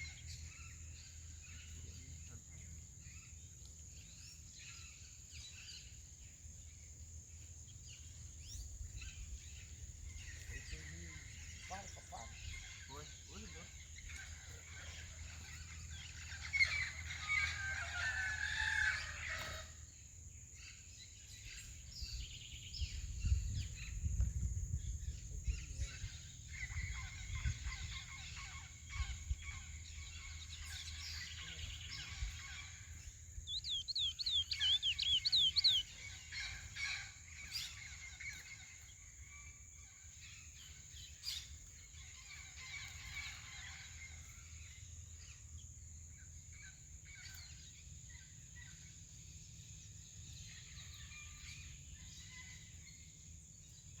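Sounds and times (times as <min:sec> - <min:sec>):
finch singing whistled notes: 0:33.4 - 0:36.2.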